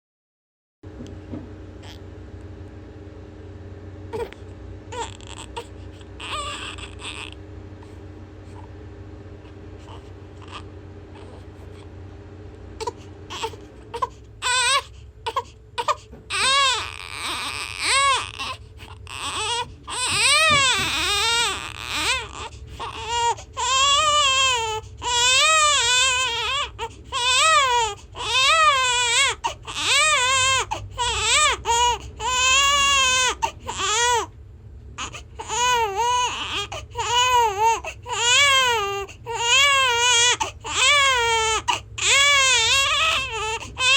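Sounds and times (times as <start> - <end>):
baby crying: 4.1 - 7.4, 9.8 - 11.4, 12.8 - 34.3, 35.0 - 43.9.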